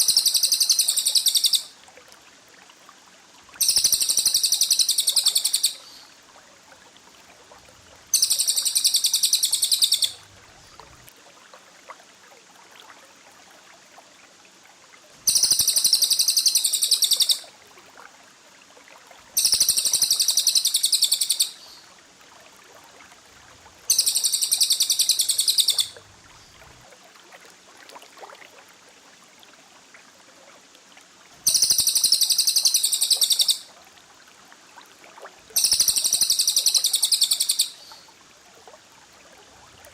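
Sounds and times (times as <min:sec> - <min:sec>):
songbird trilling: 0:00.0 - 0:01.7, 0:03.6 - 0:06.0, 0:08.1 - 0:10.2, 0:15.3 - 0:17.4, 0:19.4 - 0:21.7, 0:23.9 - 0:26.0, 0:31.5 - 0:33.7, 0:35.6 - 0:38.0.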